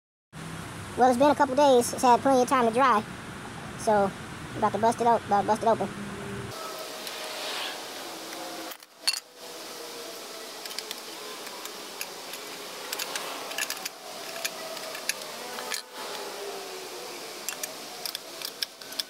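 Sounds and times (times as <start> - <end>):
steady hiss: 6.5 - 19.0.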